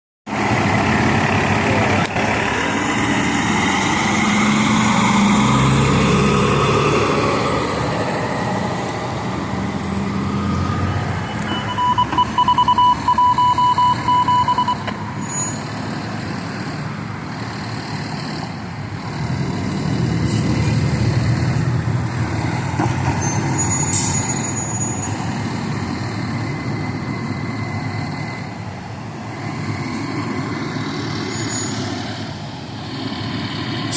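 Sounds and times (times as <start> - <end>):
fire truck engines driving past: 0.3 - 33.9
rapidly pulsing electronic beep: 11.2 - 15.6.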